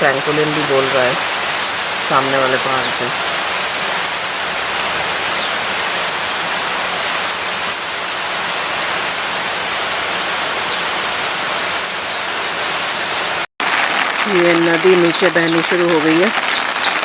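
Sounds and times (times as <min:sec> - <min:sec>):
heavy rain: 0:00.0 - 0:17.0
bird whistles high falling: 0:10.6 - 0:10.8.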